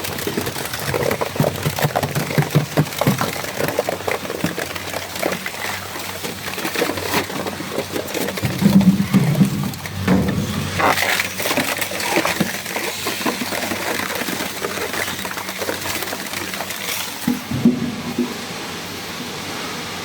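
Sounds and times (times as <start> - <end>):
shredder crushing refrigerators: 0.0 - 18.5
shredder low hum: 8.0 - 14.7.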